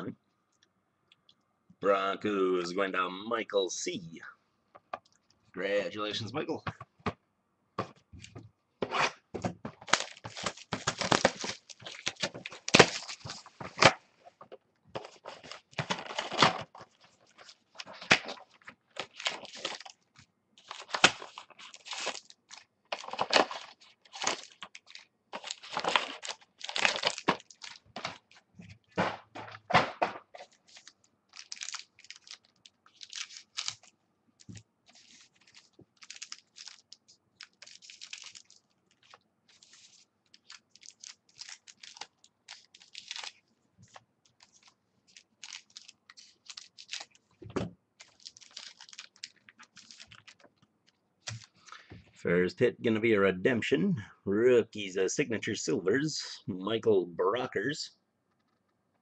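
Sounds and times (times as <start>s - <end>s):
foil wrappers tearing and crinkling: 9.8s - 13.9s, 15.1s - 20.0s, 20.6s - 28.4s, 30.4s - 33.9s, 34.5s - 47.2s, 48.0s - 50.5s
cards being handled: 15.0s - 47.2s.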